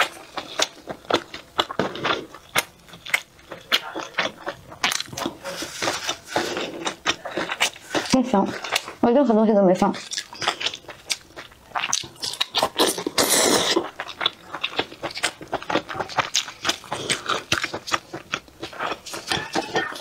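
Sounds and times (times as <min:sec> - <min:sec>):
close chewing with mouth smacks: 0:00.0 - 0:20.0
noisy slurp: 0:11.8 - 0:14.1.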